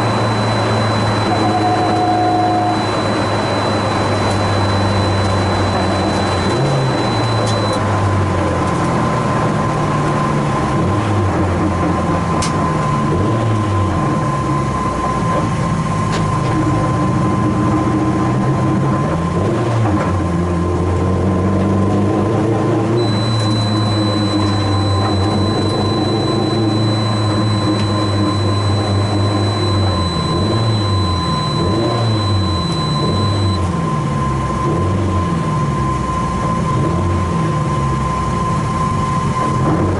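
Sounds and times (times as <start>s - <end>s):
thin high tone: 0.0s - 7.8s, 23.0s - 33.6s
steady whine: 0.0s - 8.0s, 22.9s - 39.7s
car engine accelerating: 0.0s - 39.9s.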